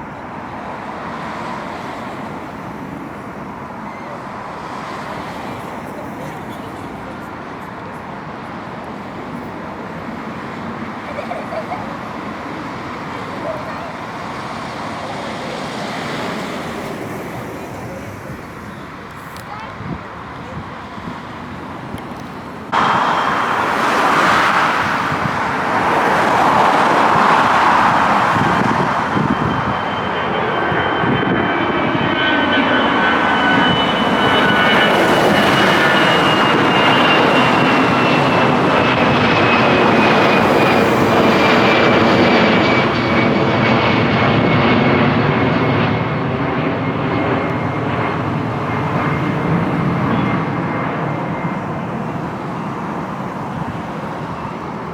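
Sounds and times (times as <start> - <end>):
jet airliner engine noise: 0.0 - 54.9
high engine whine falling in pitch: 22.8 - 26.1.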